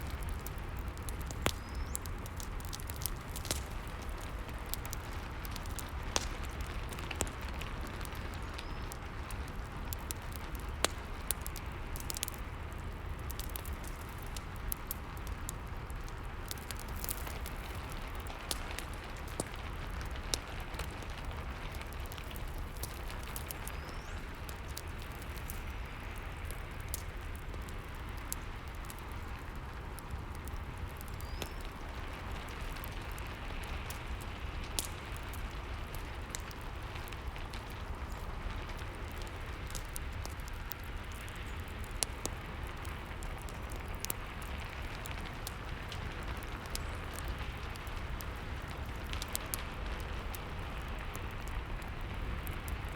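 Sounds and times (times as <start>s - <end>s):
fireplace crackling and popping: 0.0s - 52.9s.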